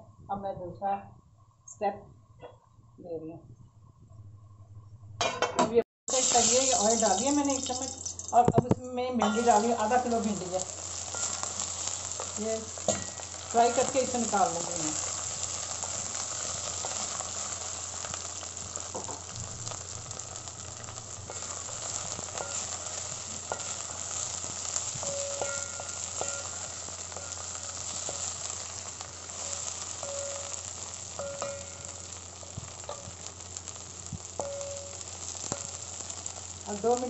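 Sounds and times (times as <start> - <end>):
okra sizzling in oil: 6.1 - 37.0.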